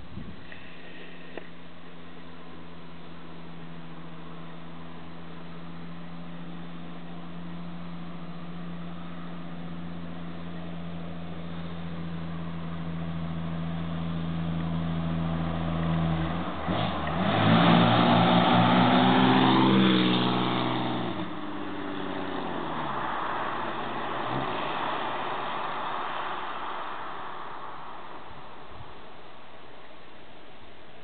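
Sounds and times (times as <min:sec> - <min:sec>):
car engine revving: 0:03.9 - 0:28.7.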